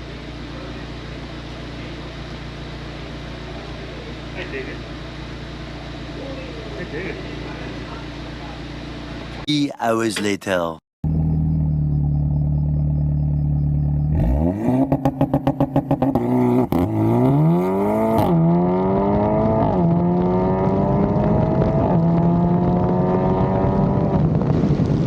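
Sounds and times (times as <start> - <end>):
car engine revving and accelerating: 11.1 - 25.0.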